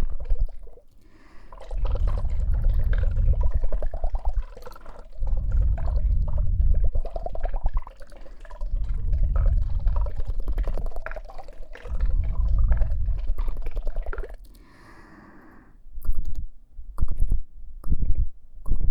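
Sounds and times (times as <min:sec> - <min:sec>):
wet liquid sounds on microphone: 0:00.0 - 0:16.4
deep rumble under dense crackle: 0:01.7 - 0:14.7.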